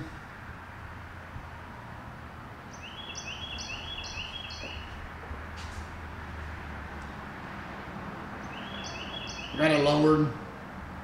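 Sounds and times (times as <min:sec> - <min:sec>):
bird singing high notes: 0:02.7 - 0:05.0, 0:08.4 - 0:09.8.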